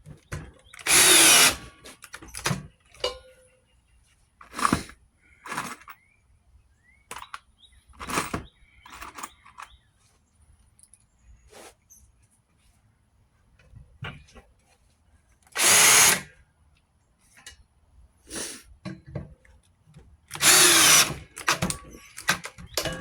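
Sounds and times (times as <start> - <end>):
tools and wood knocking and scraping: 0.0 - 3.6, 4.4 - 6.1, 7.1 - 10.2, 13.5 - 17.8, 18.8 - 23.0.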